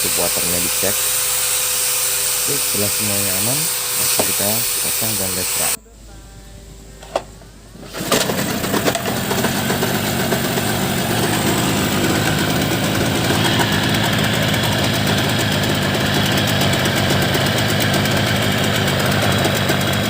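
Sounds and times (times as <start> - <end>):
outboard boat motor starting and idling: 7.7 - 20.0.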